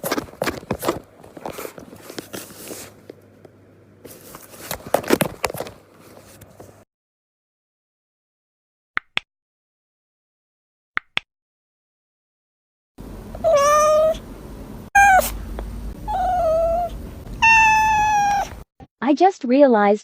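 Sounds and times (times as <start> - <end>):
cat meowing: 13.4 - 14.2, 15.0 - 15.4, 16.0 - 18.6.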